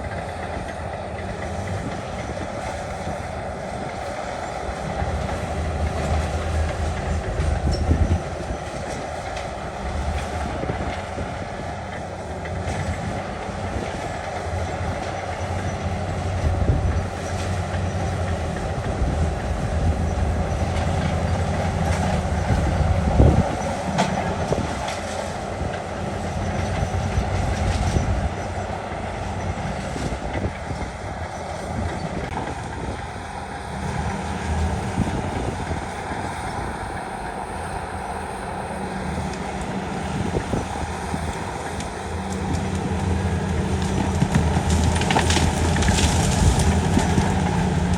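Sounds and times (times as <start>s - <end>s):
diesel engine rumble: 0.0s - 47.9s
rattling clatter: 40.2s - 47.9s.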